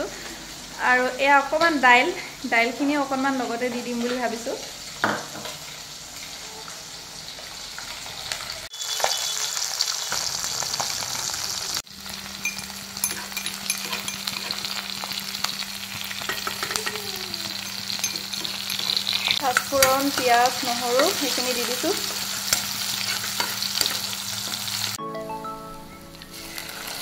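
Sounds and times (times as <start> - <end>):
onions sizzling in hot oil: 0.0 - 25.0, 26.2 - 27.0
steel spoon scraping pan: 12.4 - 24.9.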